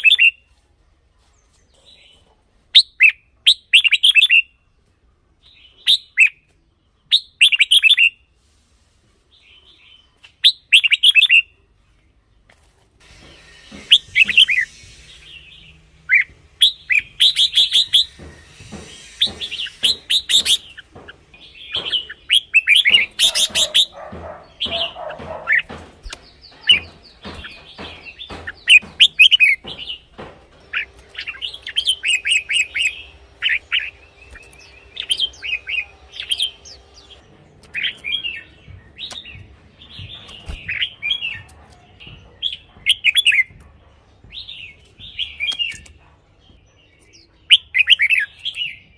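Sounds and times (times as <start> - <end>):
birds warbling: 13.0 - 43.6.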